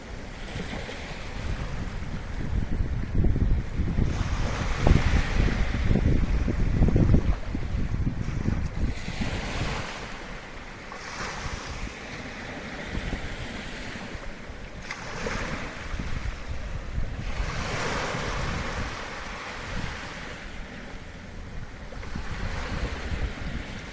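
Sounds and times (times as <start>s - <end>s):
small waves breaking on shore: 0.0s - 23.9s
wind buffeting microphone: 0.0s - 23.9s.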